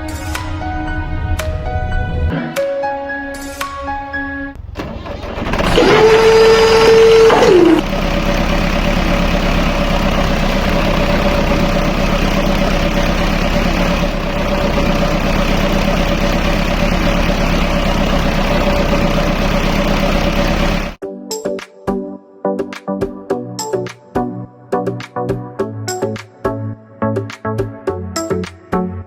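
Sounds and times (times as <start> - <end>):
engine idling: 4.6 - 21.0
tone sliding down in pitch: 5.6 - 7.8.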